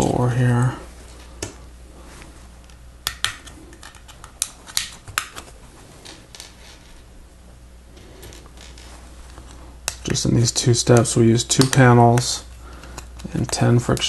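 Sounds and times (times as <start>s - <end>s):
plastic pins clicking into parts: 10.9s - 14.0s.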